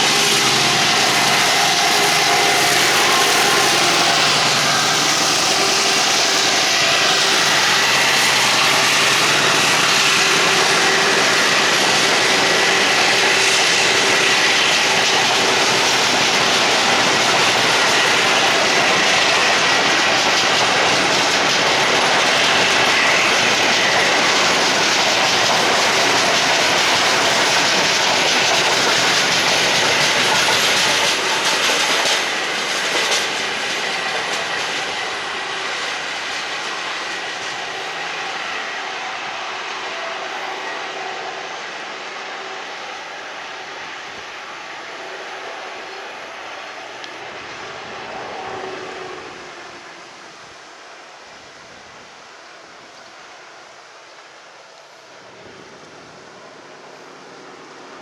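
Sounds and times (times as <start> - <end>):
wheels clacking over rail joints: 0.0 - 38.4
freight wagons rolling past: 0.0 - 39.2.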